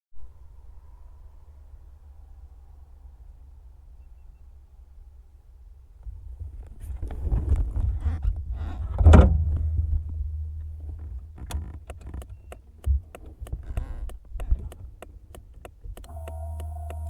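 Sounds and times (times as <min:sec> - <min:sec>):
low rumble: 0:07.2 - 0:11.5
heavy thunk: 0:09.0 - 0:10.2
even ticking: 0:10.7 - 0:17.0.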